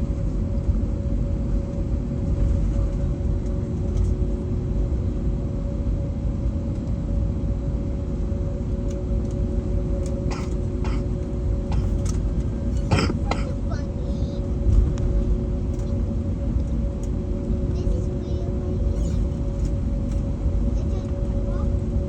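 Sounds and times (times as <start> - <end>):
aircraft cabin rumble: 0.0 - 22.0
steady humming tones: 0.0 - 22.0.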